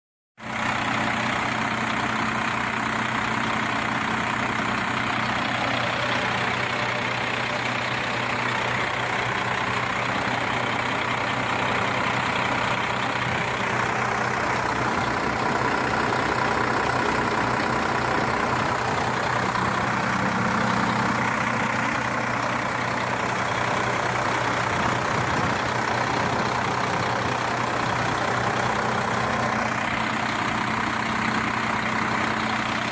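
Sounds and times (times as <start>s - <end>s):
diesel engine idling: 0.4s - 32.9s.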